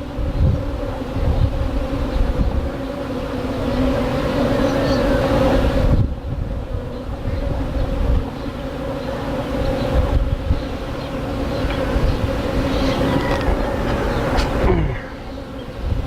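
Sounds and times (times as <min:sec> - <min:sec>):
bees buzzing: 0:00.0 - 0:16.0
wind on microphone: 0:00.0 - 0:16.0.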